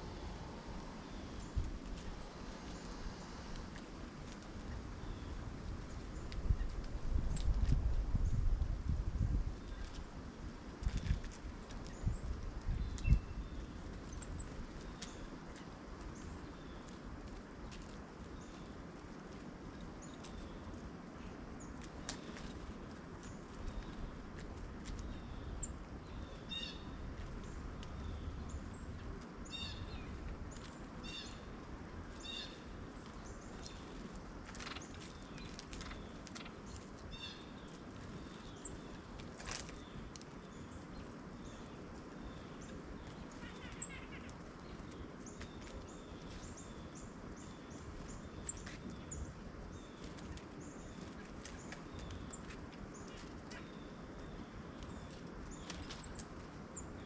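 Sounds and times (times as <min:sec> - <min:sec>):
faint low outdoor rumble: 0:00.0 - 0:57.0
birds chirping: 0:21.4 - 0:57.0.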